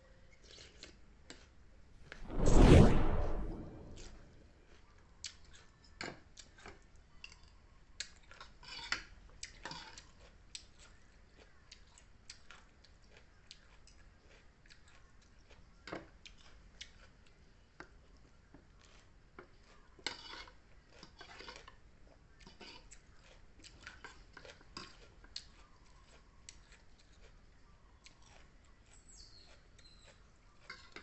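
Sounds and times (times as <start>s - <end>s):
soft chewing: 0.3s - 1.6s, 4.8s - 31.0s
crackles: 2.1s - 4.3s.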